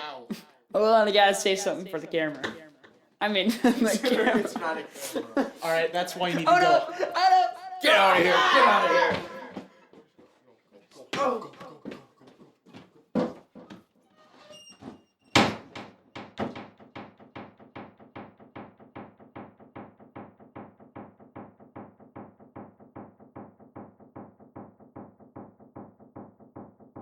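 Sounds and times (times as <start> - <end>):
thump: 15.4 - 27.0.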